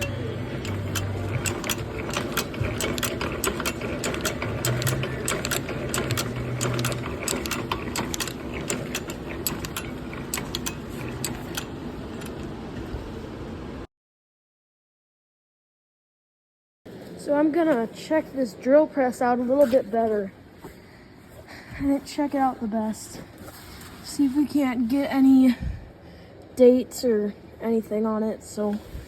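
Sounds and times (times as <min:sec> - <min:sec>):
hand drill press gears clicking: 0:00.0 - 0:12.6.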